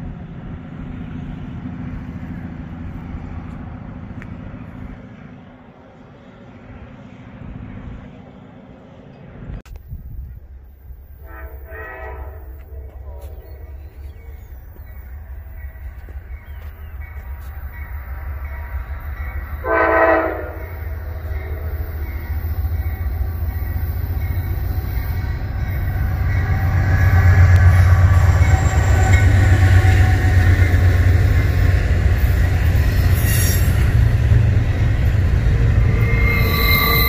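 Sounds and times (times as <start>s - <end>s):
diesel locomotive engine rumble: 0.0s - 37.0s
locomotive horn blast: 11.2s - 13.8s, 19.6s - 20.9s.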